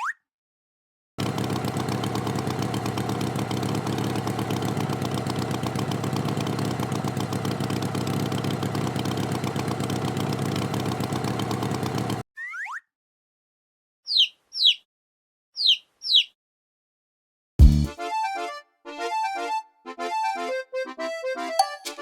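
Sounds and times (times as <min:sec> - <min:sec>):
tractor engine idling: 0:01.2 - 0:12.2.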